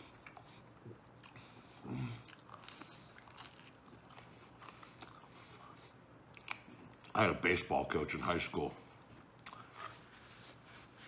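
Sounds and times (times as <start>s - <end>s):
person chewing with mouth open: 0.0s - 7.2s, 8.9s - 10.0s
low throat sound: 1.8s - 2.3s.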